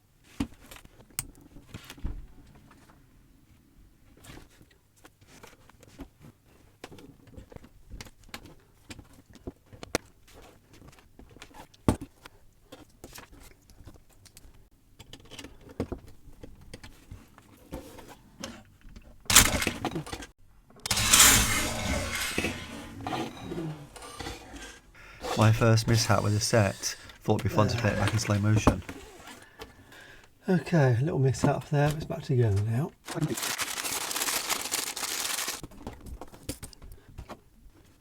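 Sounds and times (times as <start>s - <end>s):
plastic bricks clattering: 19.3s - 20.0s, 33.1s - 35.6s.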